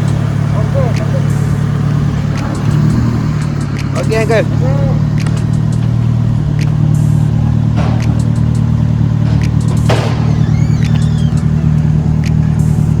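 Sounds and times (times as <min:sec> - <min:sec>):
vehicle engine running: 0:00.0 - 0:13.0
faint clicks: 0:05.1 - 0:07.2.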